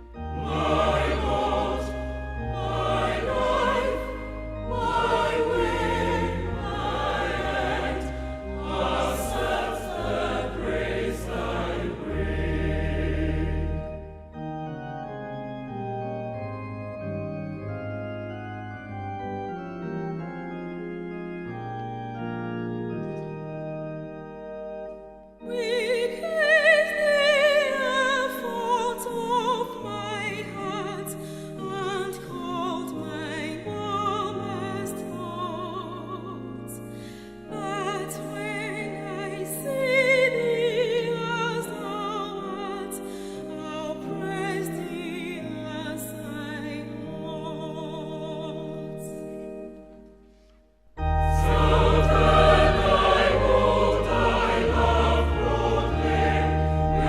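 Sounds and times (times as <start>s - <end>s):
hymn sung with vibrato: 0.0s - 13.9s, 37.5s - 49.2s, 51.1s - 57.0s
organ chords: 0.0s - 57.0s.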